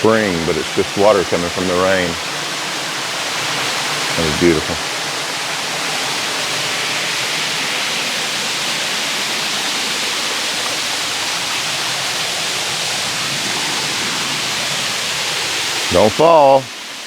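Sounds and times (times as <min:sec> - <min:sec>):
waterfall splashing: 0:00.0 - 0:17.0.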